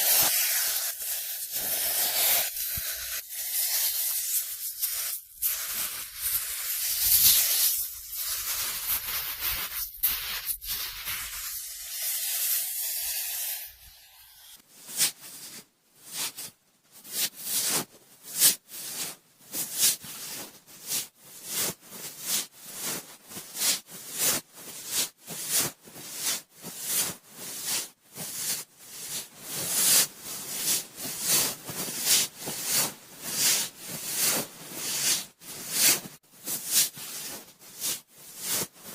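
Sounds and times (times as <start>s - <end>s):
cotton swab rubbing microphone: 0.0s - 15.6s.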